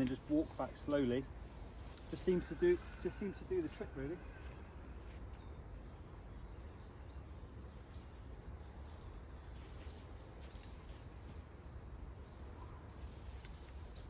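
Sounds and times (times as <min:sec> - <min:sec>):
faint bird chirps: 0:10.7 - 0:14.0.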